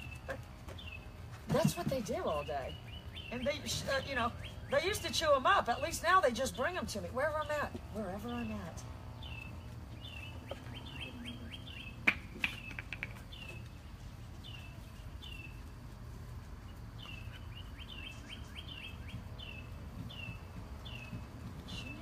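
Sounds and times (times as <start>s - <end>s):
songbird chirping: 0.0s - 22.0s.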